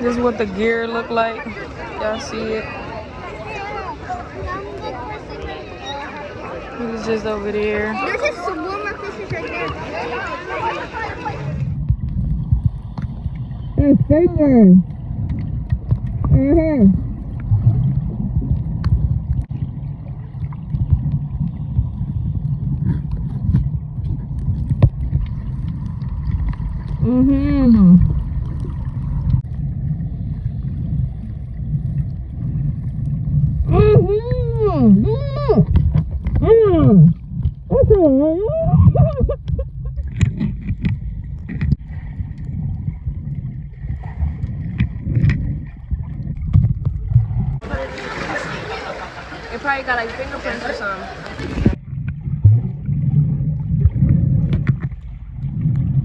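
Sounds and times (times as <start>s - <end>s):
muffled water rumble: 0.0s - 56.0s
wavering voice-like sound: 33.7s - 35.8s, 36.4s - 39.1s.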